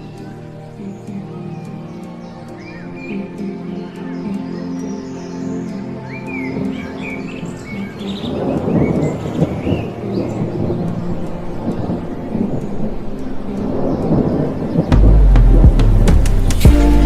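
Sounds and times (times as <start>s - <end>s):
bird chirps: 0.0s - 17.0s
rolling thunder: 13.6s - 16.7s
music with deep bass beat: 14.8s - 17.0s.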